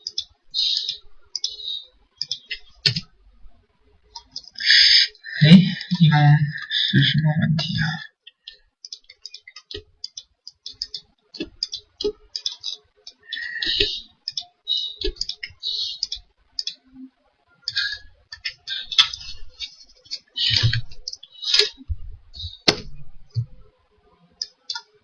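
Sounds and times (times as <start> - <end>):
keyboard and mouse clicking: 0.0 - 1.6, 2.2 - 3.1, 8.9 - 16.8, 24.4 - 24.9.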